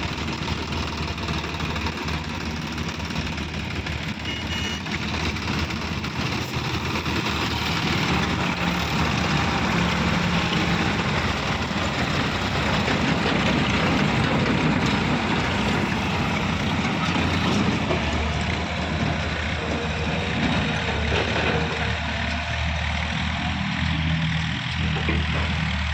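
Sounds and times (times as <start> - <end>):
heavy diesel engine running: 0.0 - 25.9.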